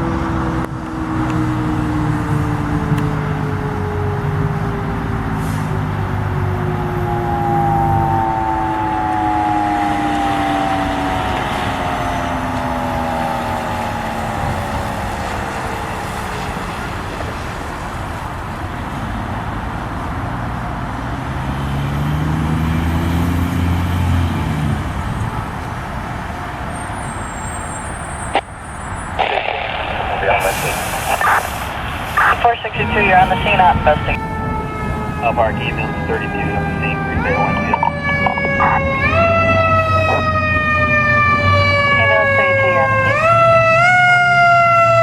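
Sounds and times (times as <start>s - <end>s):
emergency siren winding down: 0.0s - 17.4s, 29.9s - 45.0s
road traffic noise: 0.0s - 45.0s.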